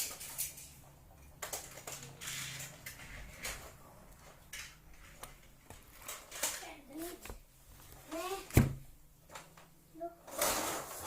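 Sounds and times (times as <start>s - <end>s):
plastic parts clicking and knocking: 0.0s - 7.4s.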